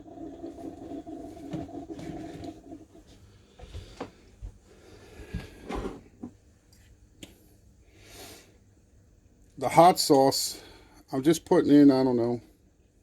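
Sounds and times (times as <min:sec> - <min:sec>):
steady hum: 0:00.0 - 0:06.3.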